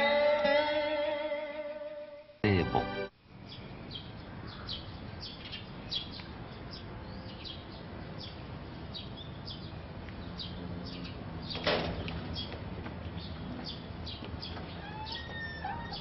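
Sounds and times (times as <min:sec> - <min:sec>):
outdoor background noise: 0:00.0 - 0:16.0
small birds chirping: 0:03.4 - 0:16.0.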